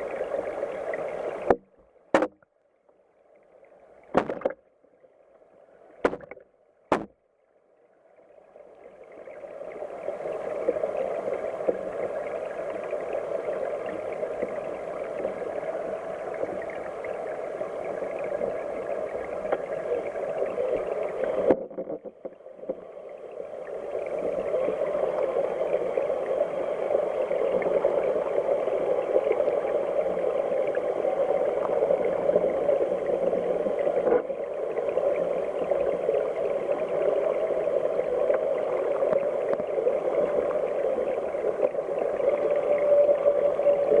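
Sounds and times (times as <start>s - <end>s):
stream flowing and gurgling: 0.0s - 2.4s, 3.1s - 44.0s
knock: 6.0s - 7.1s.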